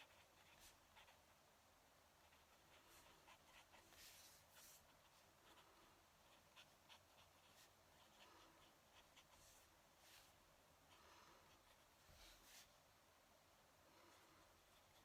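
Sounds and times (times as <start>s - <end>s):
pen nib scratching paper: 0.0s - 1.4s, 2.2s - 12.7s.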